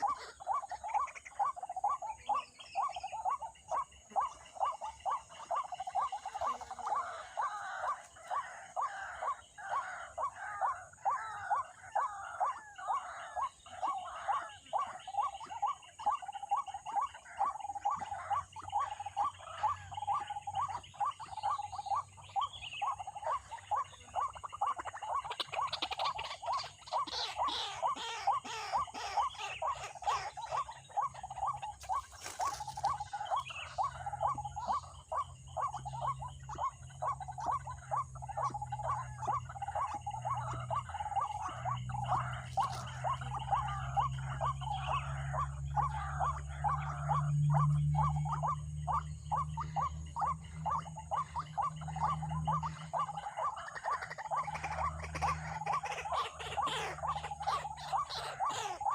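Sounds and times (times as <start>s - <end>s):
waterhen croaking call: 0.0s - 58.9s
low steady hum: 27.8s - 58.9s.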